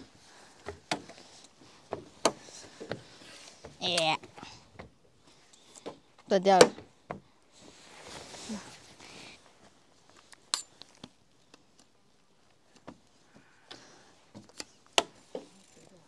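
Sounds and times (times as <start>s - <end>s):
soft rustle: 7.4s - 11.0s.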